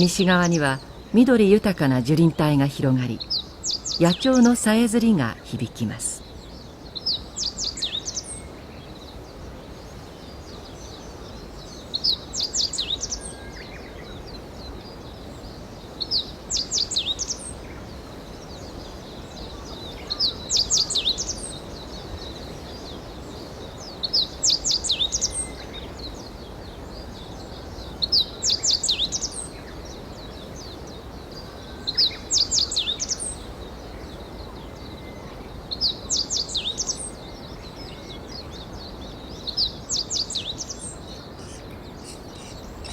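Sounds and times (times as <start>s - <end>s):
low forest hiss: 0.0s - 42.9s
songbird singing high notes: 39.6s - 42.9s.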